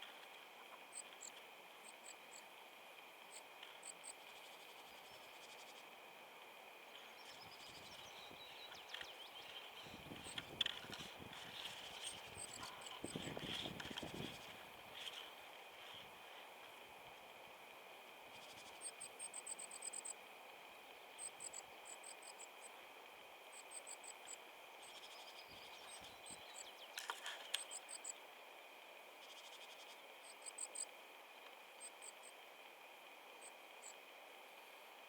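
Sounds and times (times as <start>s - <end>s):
faint steady high whine: 0.0s - 35.0s
small songbird high-pitched calls: 7.0s - 10.8s, 24.8s - 28.2s, 29.2s - 30.9s.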